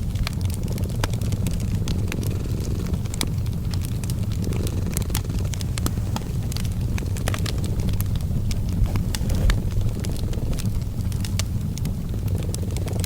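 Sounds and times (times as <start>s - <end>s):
cat purring: 0.0s - 13.0s
wood fire crackling: 0.0s - 13.0s.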